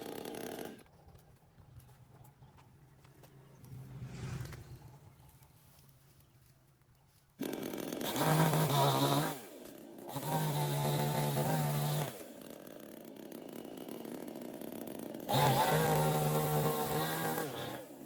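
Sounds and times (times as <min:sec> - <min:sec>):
chainsaw revving and idling: 0:00.0 - 0:01.7, 0:07.4 - 0:18.0.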